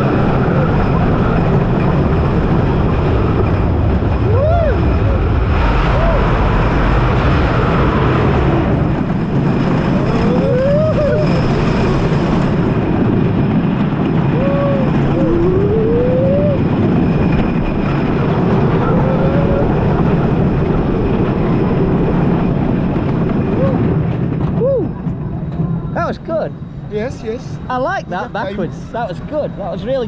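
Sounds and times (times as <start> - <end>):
rush of wind: 0.0 - 30.0
wheels rumbling on wooden track: 0.0 - 30.0
squeals or whoops: 4.2 - 6.5, 10.0 - 12.0, 14.3 - 16.7, 23.5 - 25.0.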